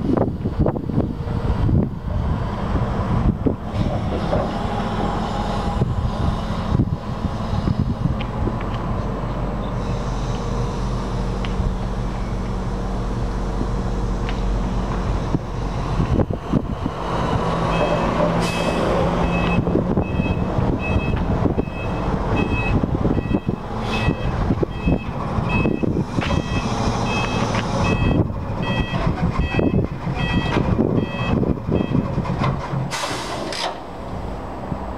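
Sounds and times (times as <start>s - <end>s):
truck engine running: 0.0s - 34.9s
knocks and clunks: 3.4s - 5.2s, 17.4s - 21.7s, 22.3s - 33.8s.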